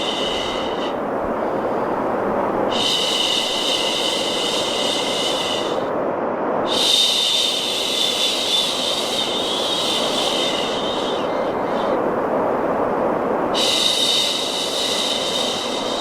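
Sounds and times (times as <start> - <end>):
rushing white noise: 0.0 - 16.0.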